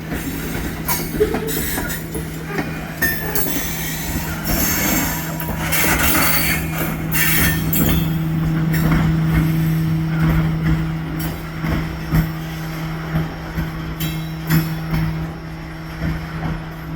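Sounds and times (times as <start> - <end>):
freight train rolling on rails: 0.0 - 16.9
wheel squeal: 0.2 - 8.5.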